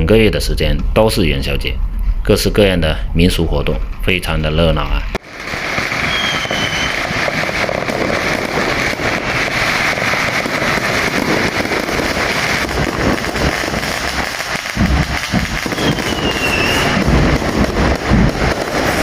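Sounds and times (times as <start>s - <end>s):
firecrackers crackling: 5.2s - 19.0s
short firework whistle: 5.6s - 7.9s, 14.7s - 17.4s.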